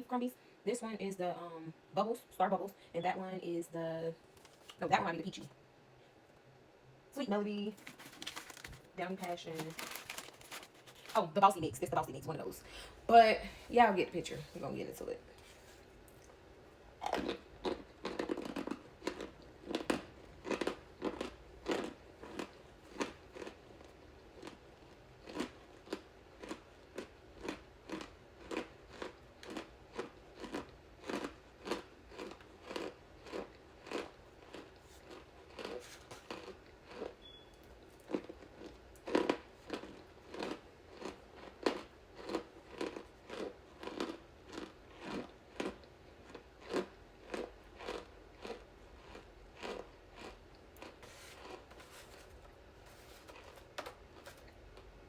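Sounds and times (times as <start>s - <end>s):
person chewing crunchy food: 17.0s - 55.0s.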